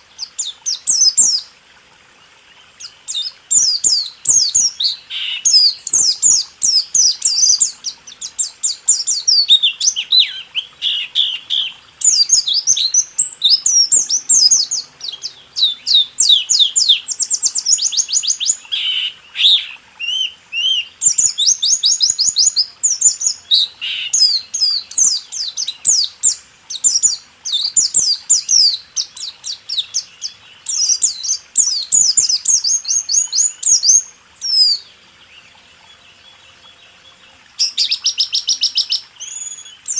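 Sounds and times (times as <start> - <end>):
bird singing fast rolling song: 0.0 - 39.9.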